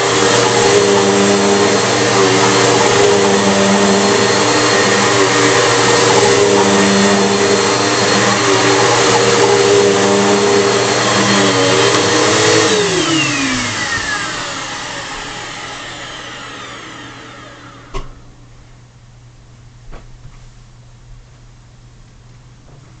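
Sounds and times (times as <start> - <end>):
vacuum cleaner motor whine: 0.0 - 18.4.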